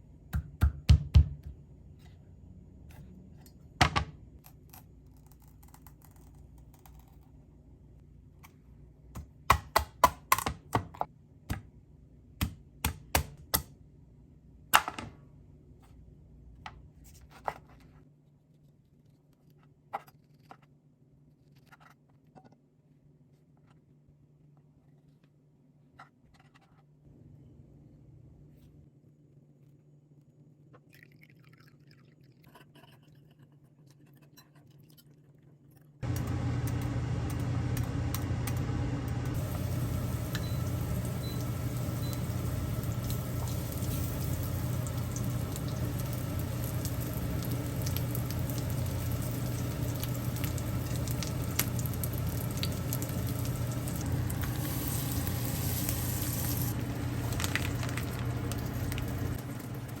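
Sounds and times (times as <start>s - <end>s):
low hum with hiss: 22.5s - 31.4s, 35.7s - 60.0s.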